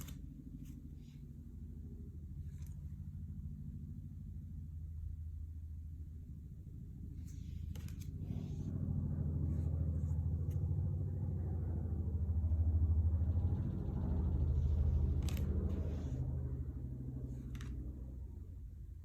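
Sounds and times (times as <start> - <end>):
low humming rumble: 0.0 - 19.0
playing cards clicking: 7.6 - 8.2, 15.2 - 16.1, 17.4 - 17.9.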